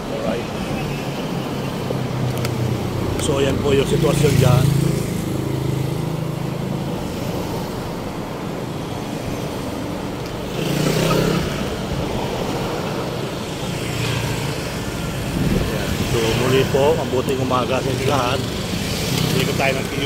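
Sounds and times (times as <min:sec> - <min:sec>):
traffic engines running: 0:00.0 - 0:20.0
vehicle passing close: 0:10.4 - 0:20.0.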